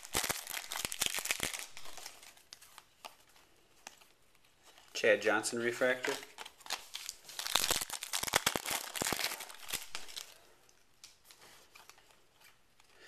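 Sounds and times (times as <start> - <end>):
wrapper crinkling and tearing: 0.0 - 5.0, 6.0 - 10.4.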